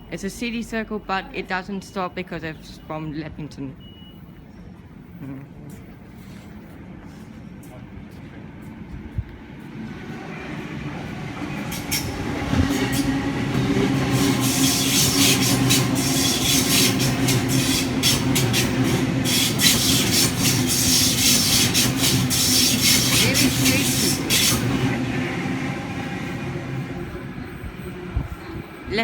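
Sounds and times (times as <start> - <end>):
electric train motor hum: 9.2 - 29.0
train wheels clicking over rail joints: 9.7 - 26.0.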